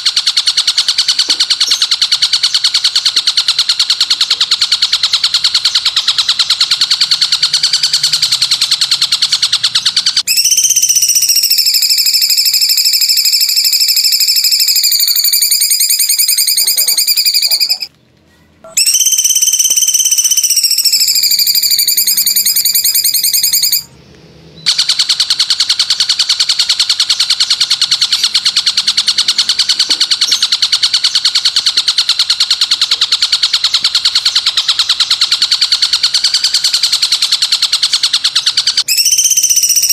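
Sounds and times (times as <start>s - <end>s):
fast-pulsing high trill: 0.0s - 17.9s, 18.7s - 23.9s, 24.7s - 39.9s
long piercing whistle: 10.2s - 17.9s, 18.7s - 23.9s, 38.8s - 39.9s.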